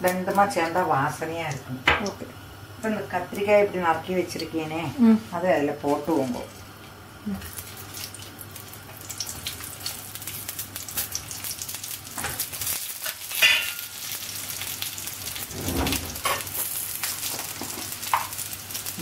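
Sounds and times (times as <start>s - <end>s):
vegetables sizzling in oil: 0.0s - 19.0s
knocks in frying pan: 1.8s - 2.2s, 13.4s - 13.9s.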